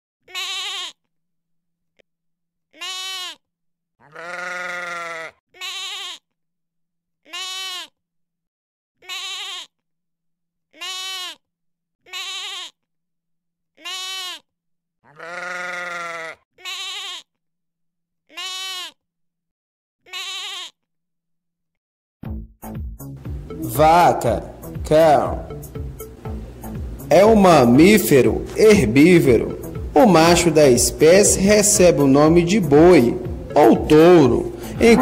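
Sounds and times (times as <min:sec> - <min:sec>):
sheep bleating: 0:00.3 - 0:01.0, 0:02.8 - 0:03.4, 0:04.0 - 0:06.2, 0:07.3 - 0:07.9, 0:09.0 - 0:09.7, 0:10.8 - 0:11.4, 0:12.0 - 0:12.8, 0:13.8 - 0:17.3, 0:18.3 - 0:19.0, 0:20.0 - 0:20.8, 0:23.5 - 0:25.8, 0:27.1 - 0:35.0.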